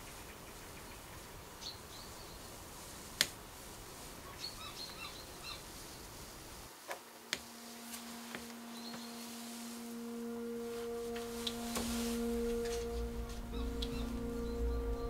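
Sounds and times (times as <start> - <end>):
outdoor background hiss: 0.0 - 15.0
steady low tone: 7.4 - 15.0
bird chirps: 8.6 - 9.3, 11.4 - 15.0.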